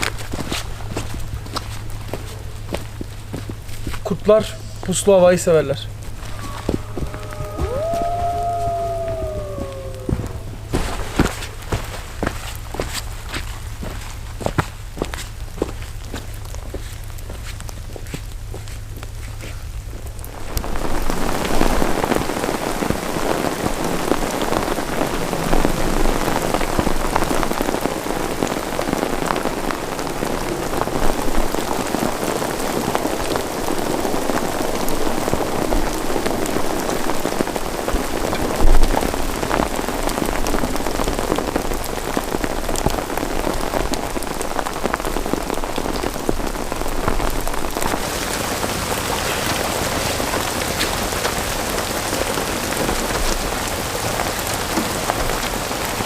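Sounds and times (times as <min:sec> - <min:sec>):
heavy rain: 0:00.0 - 0:56.0
low thump: 0:09.0 - 0:11.4.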